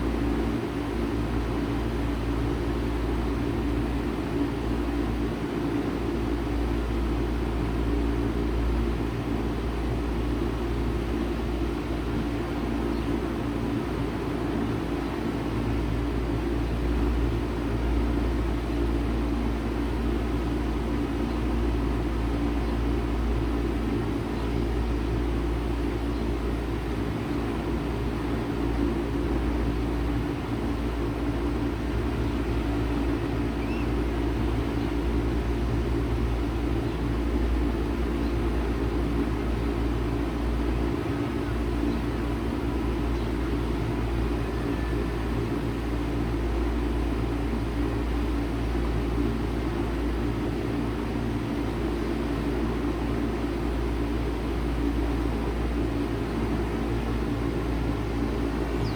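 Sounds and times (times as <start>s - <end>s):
heat pump compressor hum: 0.0s - 58.9s.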